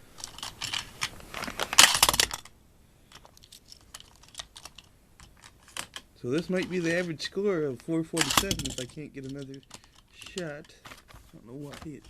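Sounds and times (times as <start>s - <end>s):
toy truck and track clicking: 8.1s - 10.8s.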